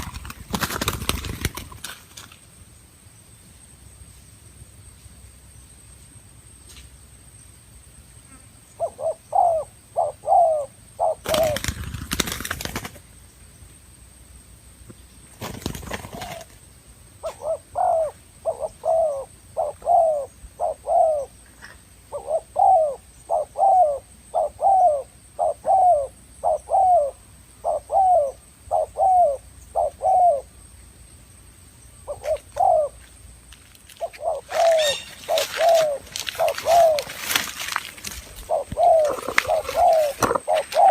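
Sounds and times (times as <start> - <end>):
dove cooing: 8.3 - 12.0, 15.8 - 16.6, 17.2 - 30.5, 32.1 - 33.1, 33.9 - 40.9.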